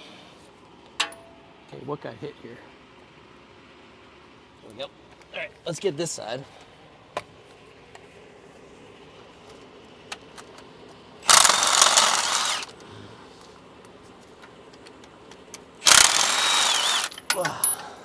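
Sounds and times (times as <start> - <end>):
cordless power tool running: 11.2 - 12.7, 15.8 - 17.2.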